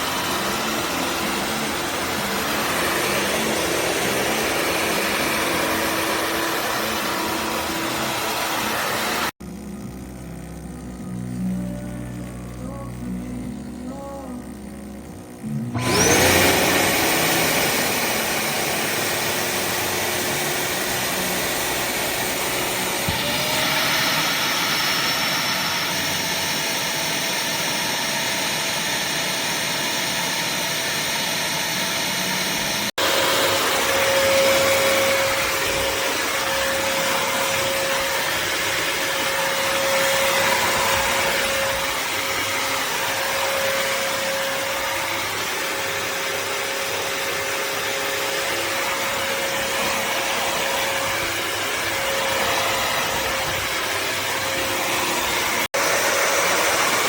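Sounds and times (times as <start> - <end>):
wet-dry vacuum whirring: 0.0 - 57.0
steady hum: 9.4 - 15.8.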